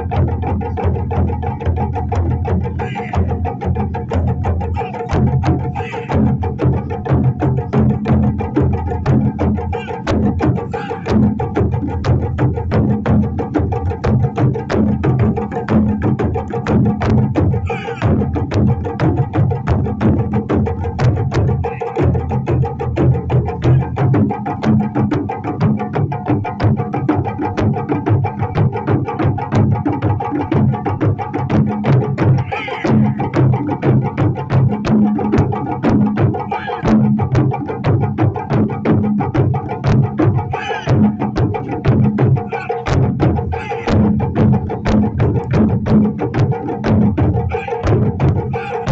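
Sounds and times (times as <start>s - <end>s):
taiko drums: 0.0s - 48.9s.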